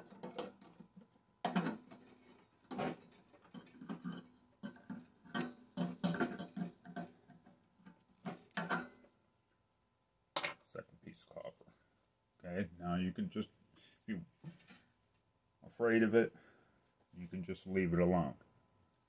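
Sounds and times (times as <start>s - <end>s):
small metal parts clicking and knocking: 0.0s - 9.1s.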